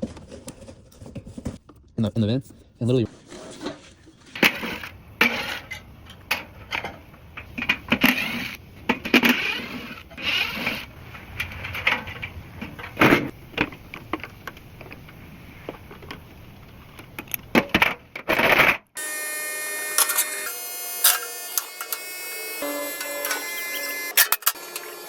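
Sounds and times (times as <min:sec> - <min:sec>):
scraping and rustling: 0:00.0 - 0:01.8, 0:02.6 - 0:17.2
tools clicking and clattering: 0:23.0 - 0:24.9.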